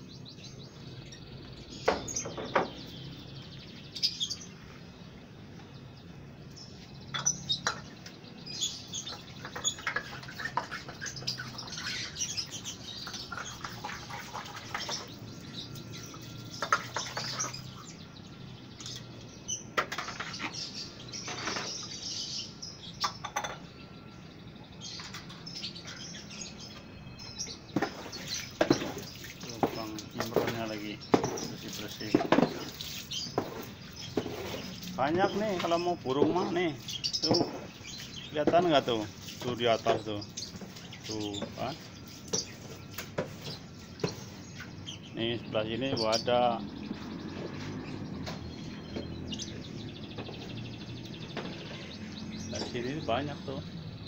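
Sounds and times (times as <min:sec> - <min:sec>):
lovebirds chirping: 0:00.0 - 0:54.0
sharp knocks: 0:01.8 - 0:02.9.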